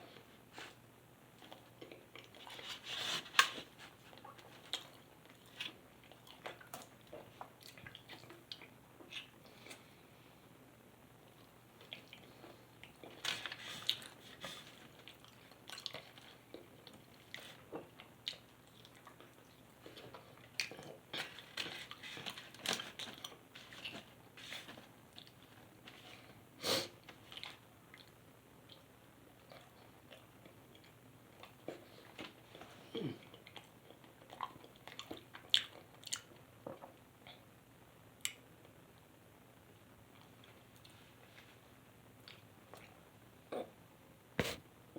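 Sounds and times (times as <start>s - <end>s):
chewing and crunching food: 0.1s - 10.0s, 11.2s - 26.4s, 27.0s - 37.5s, 42.2s - 43.7s.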